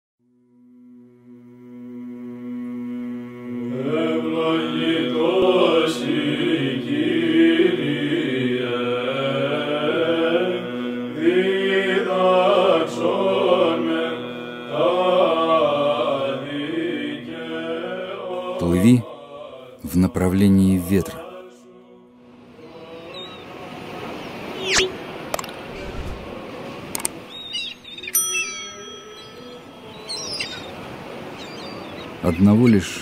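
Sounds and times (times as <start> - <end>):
chanted sung melody: 0.3 - 25.3, 25.9 - 33.0.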